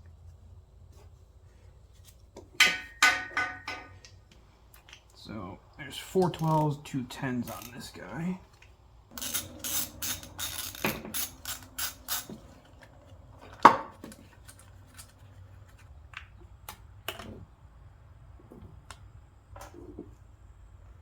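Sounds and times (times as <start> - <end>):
tools clinking and knocking: 2.6 - 4.1, 9.1 - 12.8
ratchet wrench clicking: 9.2 - 12.4.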